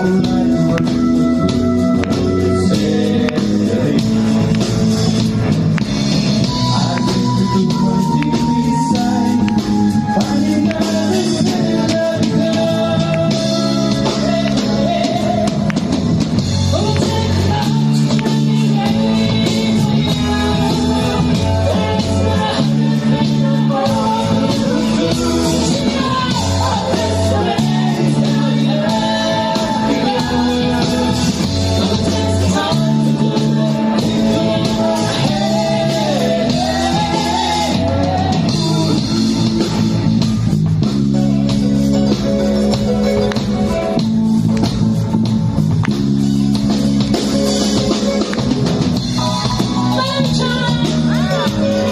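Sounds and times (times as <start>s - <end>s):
bass guitar: 0.0s - 51.9s
drum kit: 0.0s - 51.9s
guitar: 0.0s - 51.9s
rock band music: 0.0s - 51.9s
person singing: 6.4s - 40.0s, 49.2s - 51.9s.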